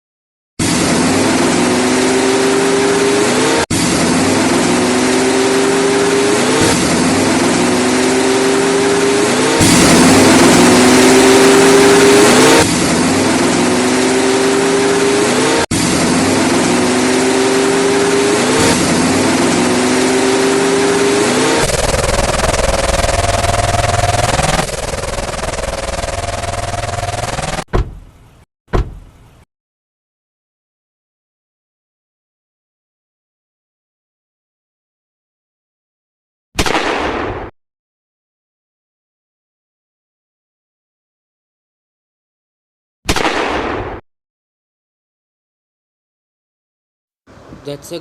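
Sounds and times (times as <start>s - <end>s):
engine revving: 0.6s - 27.7s.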